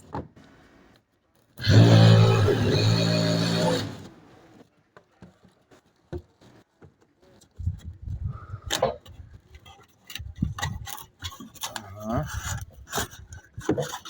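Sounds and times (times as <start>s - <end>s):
power tool motor running: 1.6s - 4.1s.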